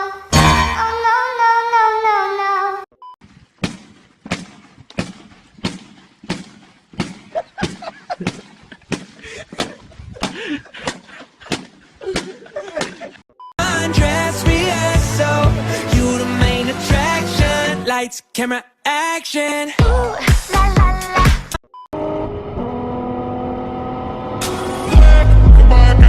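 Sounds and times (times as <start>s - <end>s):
sharp knocks or pops: 3.6s - 13.0s
person singing over music: 13.6s - 21.5s.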